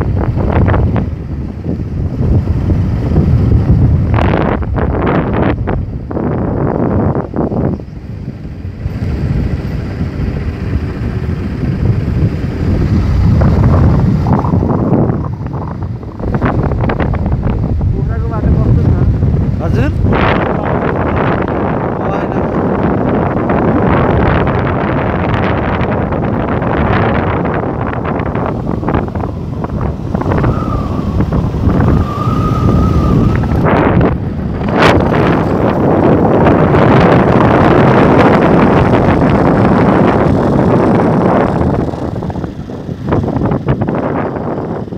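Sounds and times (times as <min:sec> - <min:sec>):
motorcycle rumble: 0:00.0 - 0:44.9
wind buffeting microphone: 0:00.0 - 0:44.9
faint wavering whistle tone: 0:30.2 - 0:33.6.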